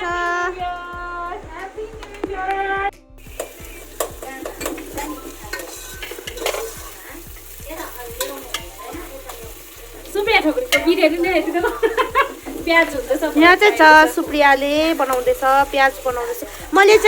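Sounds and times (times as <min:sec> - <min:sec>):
onions sizzling in oil: 0:03.2 - 0:17.0
spoon scraping a pot: 0:03.3 - 0:09.4.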